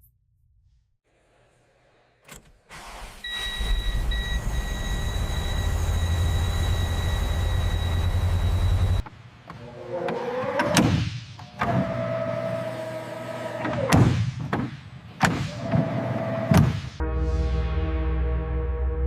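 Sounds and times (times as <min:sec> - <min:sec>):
machine rumbling and whining: 0:03.4 - 0:10.0.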